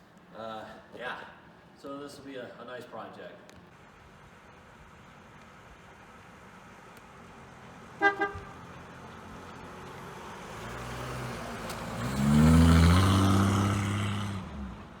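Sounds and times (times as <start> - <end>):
vehicle engine revving: 7.3 - 15.0
car horn beeps: 8.0 - 8.6.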